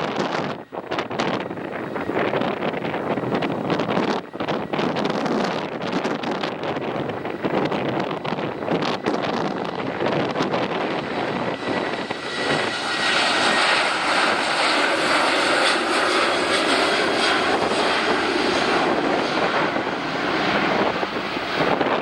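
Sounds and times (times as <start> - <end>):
jet engine whine: 0.0 - 22.0
jet engines roaring: 0.0 - 22.0.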